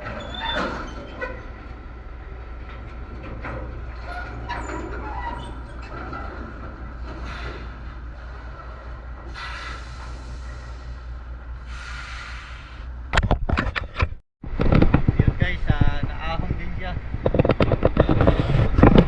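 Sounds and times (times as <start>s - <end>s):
diesel truck engine rumbling: 0.0s - 13.2s
faint knocks and rattles: 16.8s - 19.0s.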